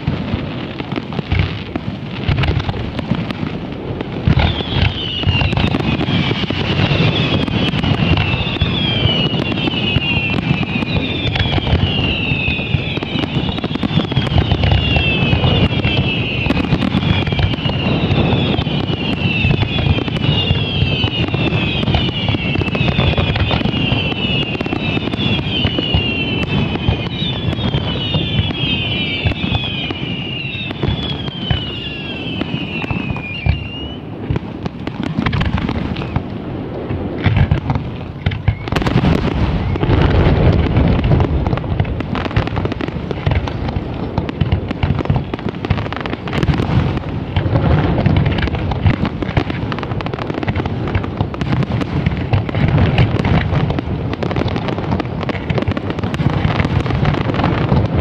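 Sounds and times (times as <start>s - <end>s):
fireworks bangs: 0.0s - 58.0s
high falling whistles: 4.3s - 34.0s.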